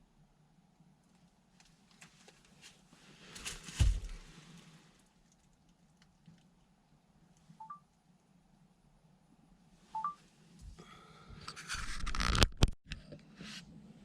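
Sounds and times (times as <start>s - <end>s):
low steady hum: 0.0s - 11.8s
heavy thud: 3.7s - 4.3s.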